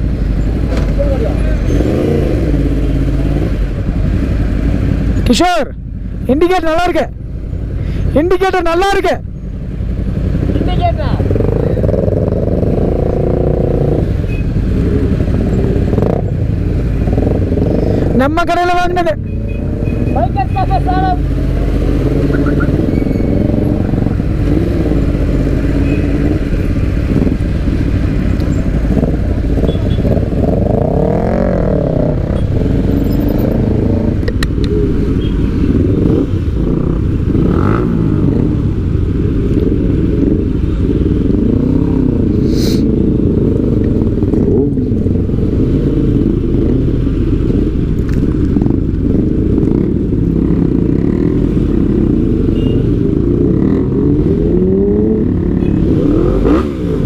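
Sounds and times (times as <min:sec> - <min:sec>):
motorcycle engine running: 0:19.3 - 0:57.0.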